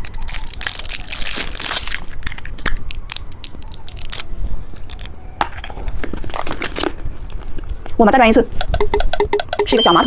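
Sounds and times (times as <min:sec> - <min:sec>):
hard candy crunching: 0:00.0 - 0:08.0.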